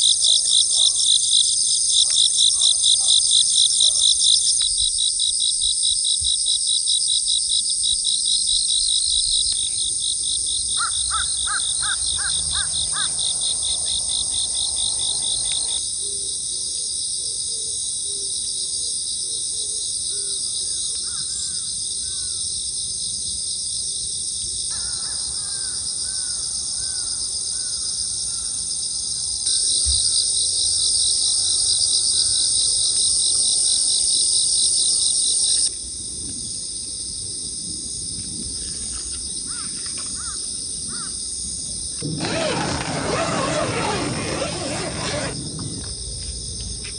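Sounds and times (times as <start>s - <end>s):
insects chirring: 0.0s - 16.9s, 24.4s - 46.9s.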